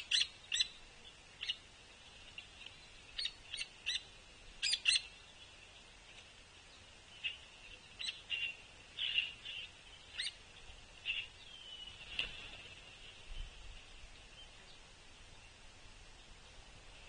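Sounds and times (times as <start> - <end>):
woodpecker call notes: 0.0 - 1.6, 2.3 - 5.2, 7.2 - 12.0.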